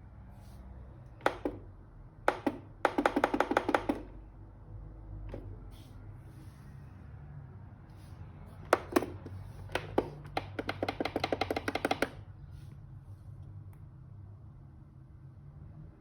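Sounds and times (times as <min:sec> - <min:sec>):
sharp clicks: 0:08.7 - 0:12.2.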